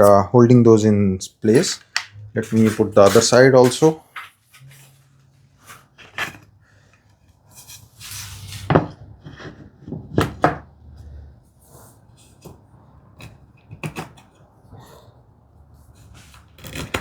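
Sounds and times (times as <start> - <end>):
wood scraping: 1.4 - 5.0.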